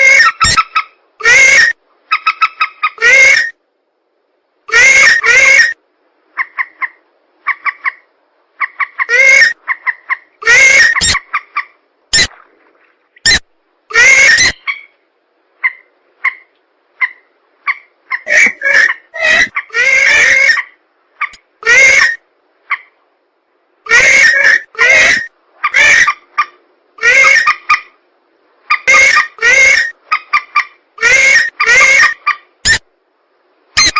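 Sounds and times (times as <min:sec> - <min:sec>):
harsh marsh bird calls: 0:04.7 - 0:05.8, 0:08.6 - 0:12.4, 0:13.2 - 0:15.0, 0:15.6 - 0:22.9, 0:23.9 - 0:26.2.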